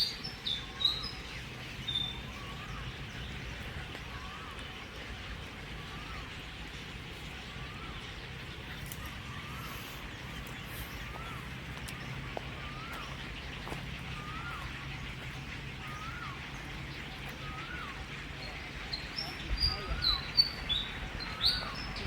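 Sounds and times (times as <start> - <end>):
bird calling: 0.0 - 22.0.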